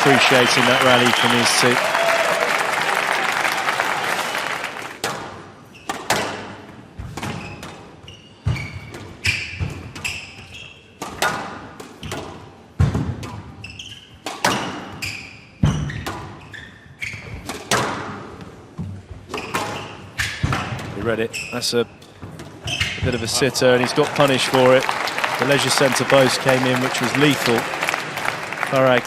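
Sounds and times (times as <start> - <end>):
applause: 0.0 - 5.0, 23.4 - 29.0
squash ball hitting rackets and walls: 5.0 - 23.4
shoe squeaks: 5.6 - 6.2, 7.3 - 11.0, 13.6 - 17.6, 19.3 - 23.5.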